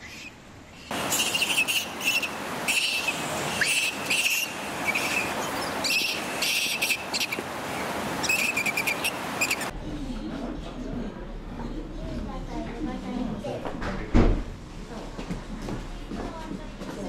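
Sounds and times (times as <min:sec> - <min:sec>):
small birds chirping: 0:00.0 - 0:09.7
flowing water: 0:00.9 - 0:09.8.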